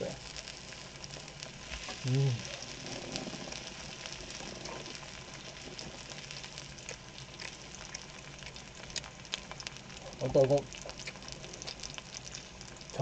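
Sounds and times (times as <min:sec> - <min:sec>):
pork sizzling in a pan: 0:00.0 - 0:13.0
person humming: 0:02.0 - 0:02.5.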